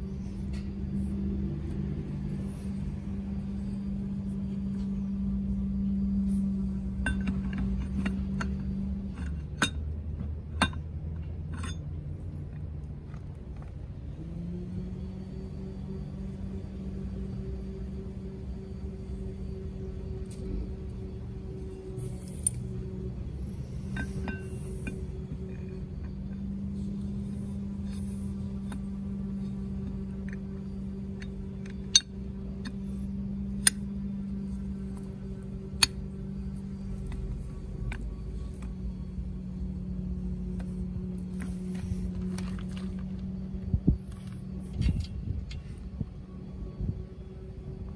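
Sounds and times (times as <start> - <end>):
steady low hum: 0.0 - 47.9
metallic clicks of tools: 6.9 - 9.9, 27.1 - 38.8.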